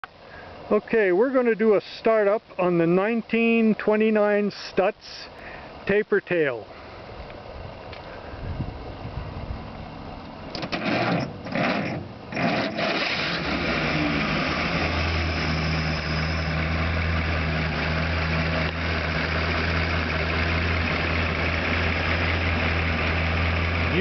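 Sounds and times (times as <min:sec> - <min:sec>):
car engine starting and idling: 0:07.0 - 0:24.0.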